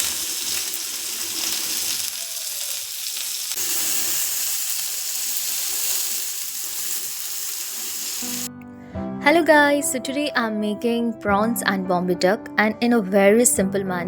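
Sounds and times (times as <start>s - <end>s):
oil sizzling in a pan: 0.0s - 8.5s.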